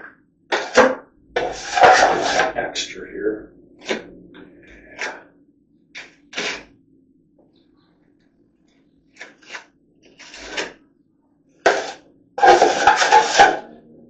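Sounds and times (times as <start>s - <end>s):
drywall knife scraping compound: 0.5s - 2.6s, 6.0s - 6.7s, 9.2s - 10.8s, 11.6s - 13.6s.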